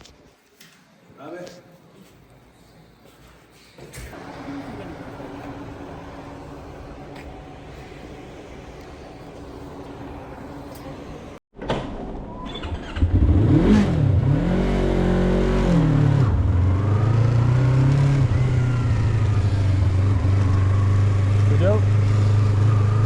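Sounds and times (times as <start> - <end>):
motorcycle engine revving: 12.6 - 23.0.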